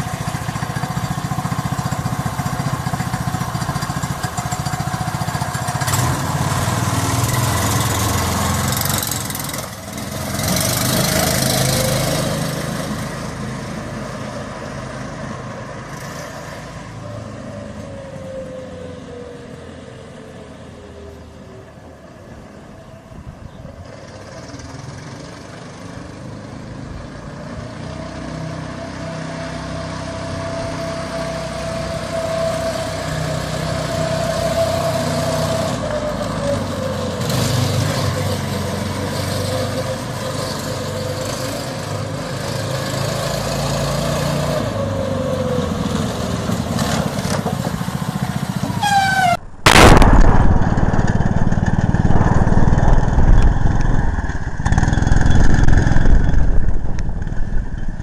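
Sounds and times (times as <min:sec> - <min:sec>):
small engine running: 0:00.0 - 0:13.9
loud harsh engine: 0:00.0 - 0:58.0.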